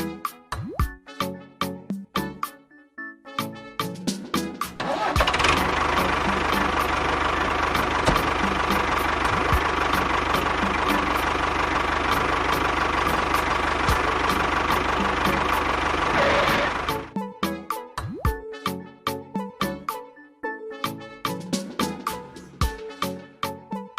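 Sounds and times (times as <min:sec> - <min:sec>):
small engine running: 0:04.7 - 0:17.1.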